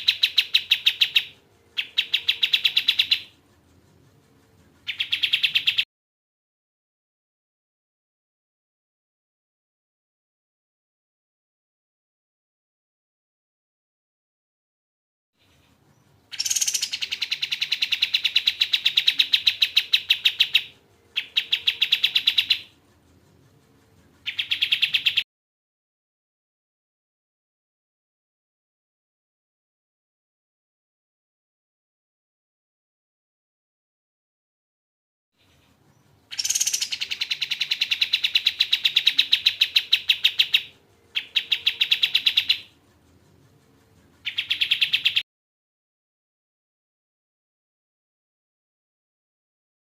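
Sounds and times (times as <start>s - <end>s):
bird rattling trills: 0.0s - 5.8s, 16.2s - 25.2s, 36.3s - 45.2s.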